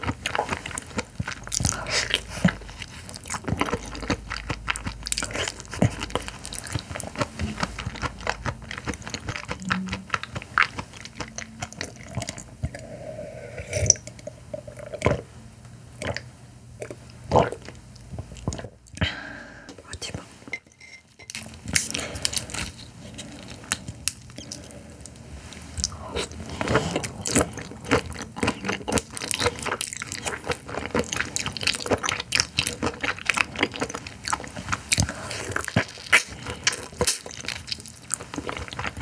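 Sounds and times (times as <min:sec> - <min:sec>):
chewing with mouth clicks: 0:00.0 - 0:13.0, 0:21.3 - 0:39.0.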